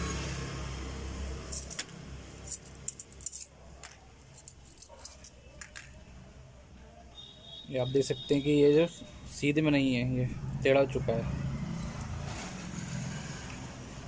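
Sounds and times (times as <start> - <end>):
metal parts clinking and rattling: 1.4 - 6.0.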